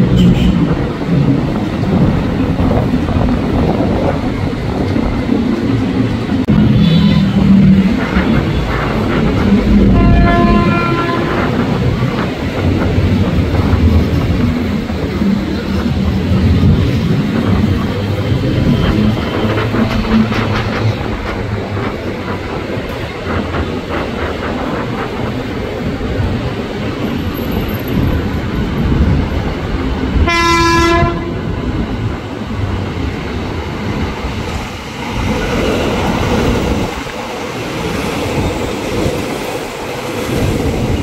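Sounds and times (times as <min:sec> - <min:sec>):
train rumbling on track: 0:00.0 - 0:41.0
train horn blast: 0:09.7 - 0:11.8, 0:30.2 - 0:31.6.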